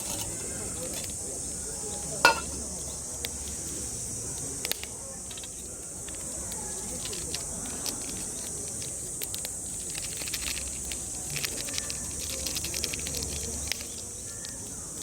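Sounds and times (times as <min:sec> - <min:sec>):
cicadas droning: 0:00.0 - 0:15.0
crackling clicks: 0:04.4 - 0:14.6.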